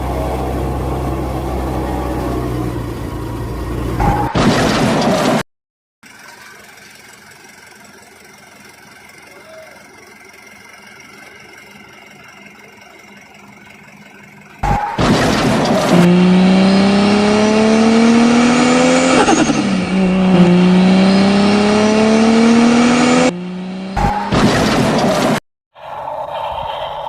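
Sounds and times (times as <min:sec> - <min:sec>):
car engine revving: 0:10.3 - 0:25.4.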